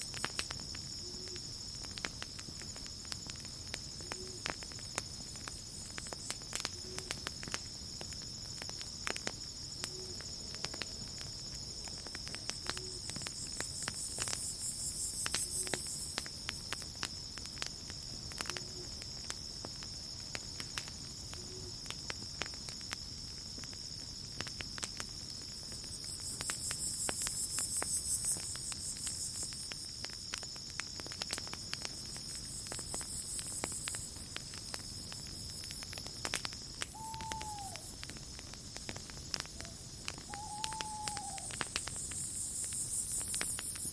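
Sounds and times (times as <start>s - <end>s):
campfire crackling: 0.0s - 43.9s
cricket trill: 0.0s - 43.9s
insect buzz: 3.8s - 16.7s, 36.7s - 38.0s, 39.4s - 43.9s.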